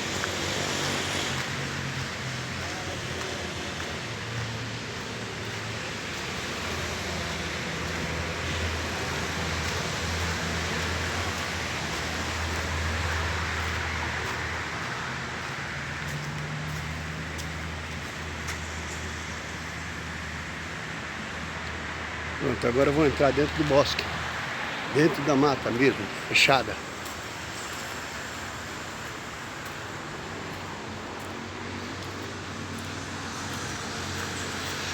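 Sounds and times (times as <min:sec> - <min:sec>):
road traffic noise: 0:00.0 - 0:34.9.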